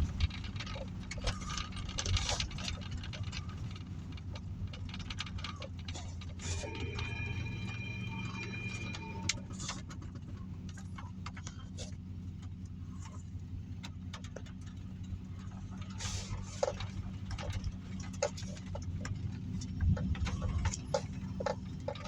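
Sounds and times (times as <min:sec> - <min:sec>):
faint held tone: 0:06.4 - 0:09.8.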